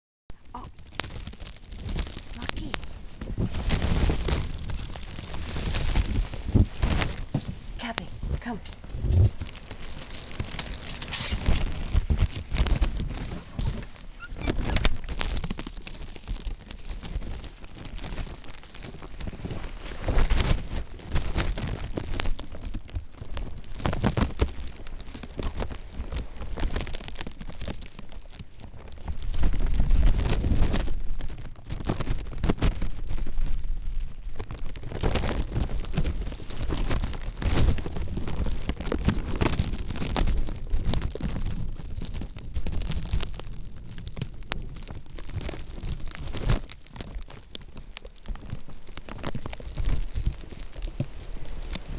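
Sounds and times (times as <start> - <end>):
wind gusting on microphone: 5.5 - 9.4.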